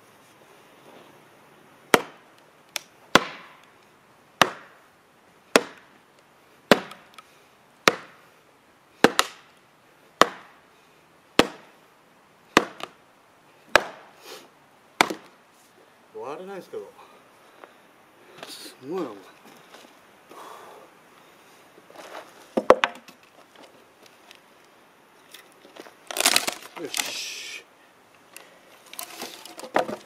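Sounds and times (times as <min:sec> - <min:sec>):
axe chopping log: 0:01.9 - 0:02.2, 0:03.1 - 0:03.6, 0:04.4 - 0:04.8, 0:05.5 - 0:05.9, 0:06.7 - 0:07.2, 0:07.8 - 0:08.2, 0:09.0 - 0:09.5, 0:10.2 - 0:10.6, 0:11.4 - 0:11.7, 0:12.6 - 0:13.0, 0:13.7 - 0:14.1, 0:15.0 - 0:15.3, 0:26.1 - 0:27.0, 0:29.5 - 0:30.0.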